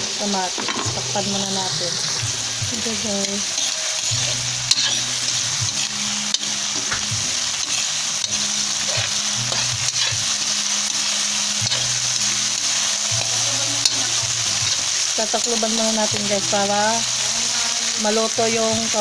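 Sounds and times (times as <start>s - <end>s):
vegetables sizzling in hot oil: 0.0s - 19.0s
metal spoon scraping pan: 3.2s - 7.0s, 7.6s - 10.2s, 11.6s - 14.9s.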